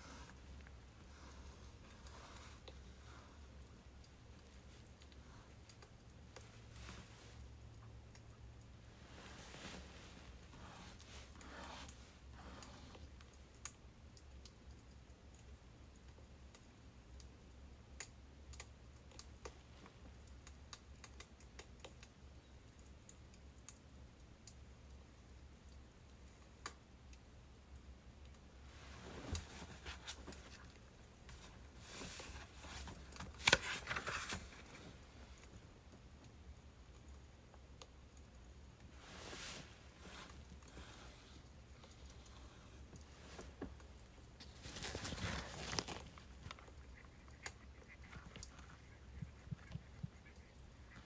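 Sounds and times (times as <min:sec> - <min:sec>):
firewood crackling faintly: 0:00.0 - 0:51.0
low steady hum: 0:00.0 - 0:51.0.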